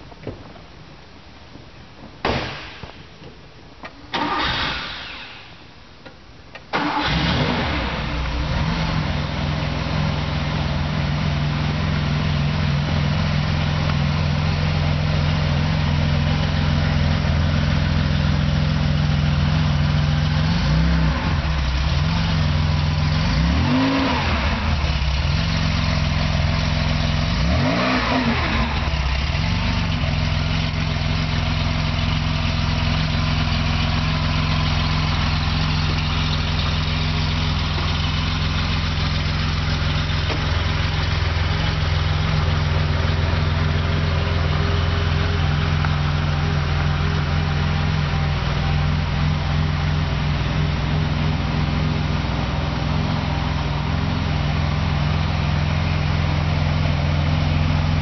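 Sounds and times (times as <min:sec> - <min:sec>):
car engine starting and idling: 0:00.0 - 0:58.0
engine revving: 0:06.8 - 0:09.6, 0:20.2 - 0:30.0.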